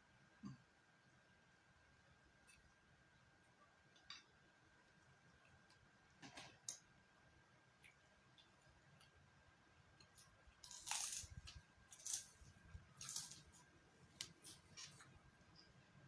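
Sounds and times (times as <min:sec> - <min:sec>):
faint low hum: 0:00.0 - 0:16.0
crisp crunches of food bitten: 0:10.6 - 0:14.9.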